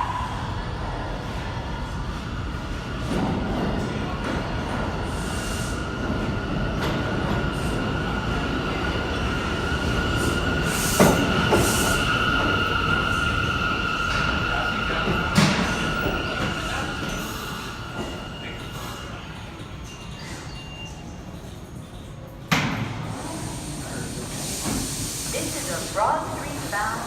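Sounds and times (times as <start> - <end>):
train cars rumbling: 0.0 - 27.0
train wheel squeal: 8.6 - 21.5.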